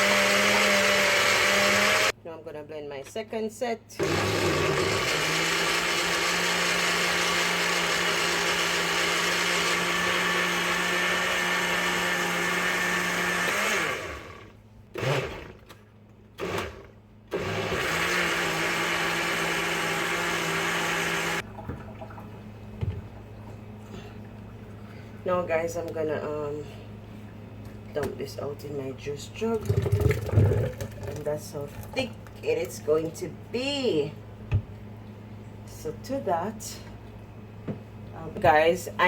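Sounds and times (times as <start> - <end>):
blender motor whirring: 0.0 - 2.1, 4.0 - 15.7, 16.4 - 21.4.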